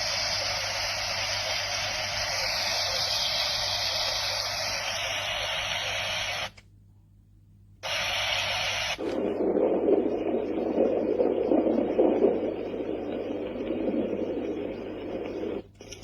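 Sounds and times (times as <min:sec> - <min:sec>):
white noise hiss: 0:00.0 - 0:06.7, 0:07.6 - 0:16.0
deeper uneven rushing noise: 0:09.0 - 0:15.7.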